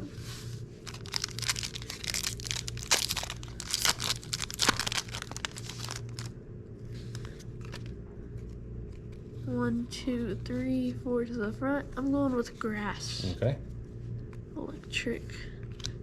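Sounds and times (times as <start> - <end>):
foil pack tearing and crinkling: 0.8 - 6.3.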